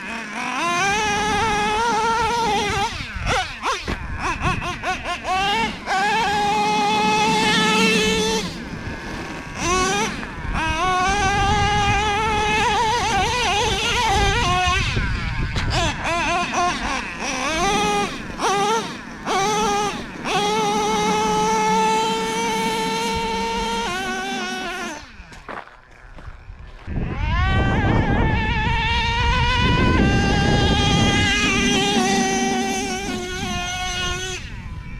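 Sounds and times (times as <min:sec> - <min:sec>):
rc truck engine whining: 0:00.0 - 0:34.9.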